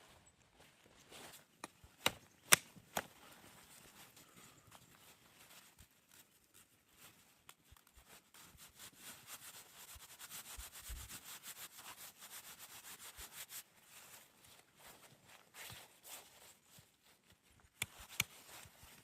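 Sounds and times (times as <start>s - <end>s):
rubbing or sawing scrapes: 8.1s - 14.2s.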